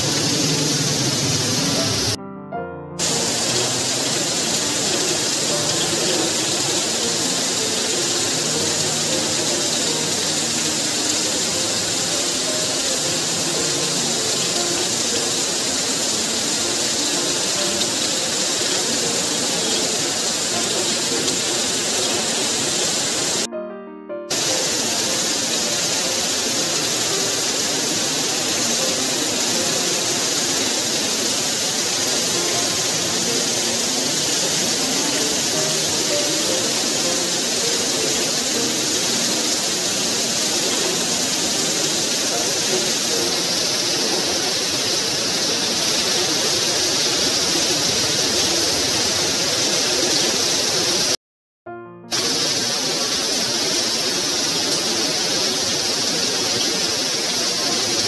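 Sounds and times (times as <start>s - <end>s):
heavy rain pouring: 0.0s - 2.2s, 3.0s - 23.5s, 24.3s - 51.2s, 52.1s - 58.0s
background music: 0.0s - 48.5s.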